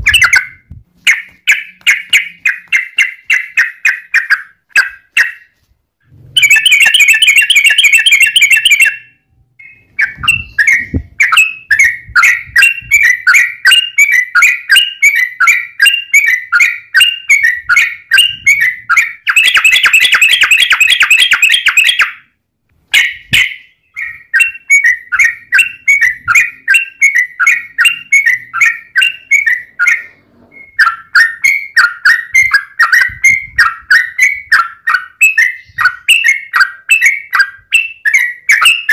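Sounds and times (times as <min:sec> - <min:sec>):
bird harsh chatter: 0:00.0 - 0:05.6
bird chirping: 0:00.0 - 0:38.9.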